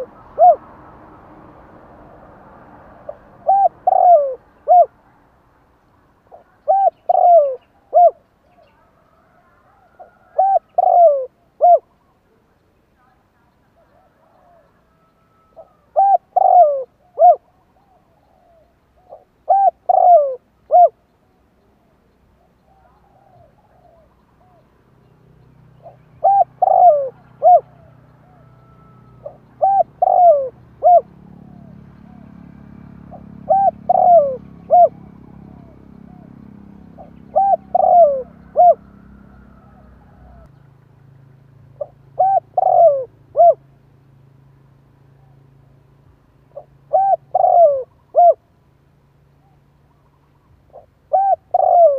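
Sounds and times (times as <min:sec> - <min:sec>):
dove cooing: 0:00.0 - 0:00.7, 0:03.0 - 0:05.0, 0:06.3 - 0:12.0, 0:13.8 - 0:21.1, 0:22.4 - 0:24.7, 0:25.8 - 0:40.6, 0:41.8 - 0:43.7, 0:46.5 - 0:48.5, 0:49.4 - 0:51.9.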